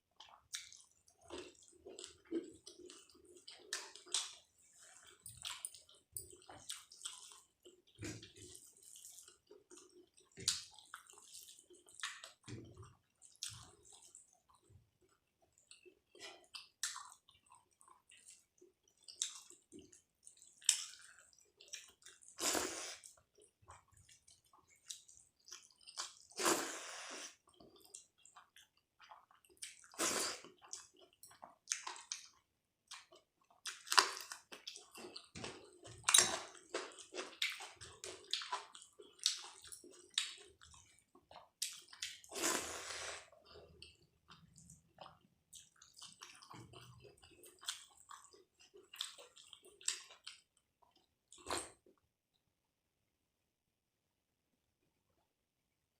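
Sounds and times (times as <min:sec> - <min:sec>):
wet chewing: 0:27.2 - 0:51.7.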